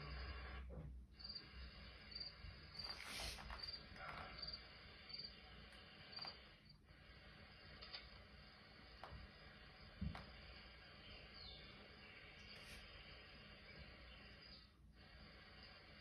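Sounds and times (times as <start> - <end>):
insect chirping: 1.2 - 6.8
brief rustle: 2.8 - 3.7.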